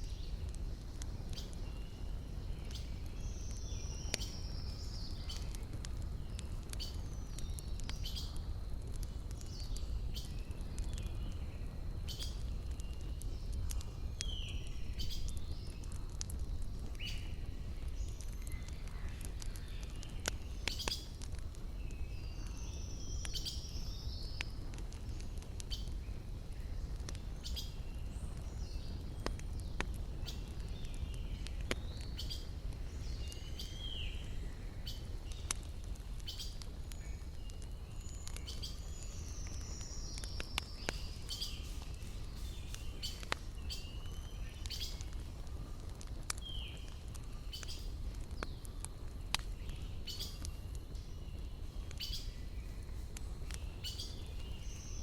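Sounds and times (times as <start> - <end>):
small birds chirping: 0.0 - 55.0
wood fire crackling: 0.0 - 55.0
descending whistled bird calls: 36.2 - 45.1, 49.5 - 52.9, 53.5 - 55.0.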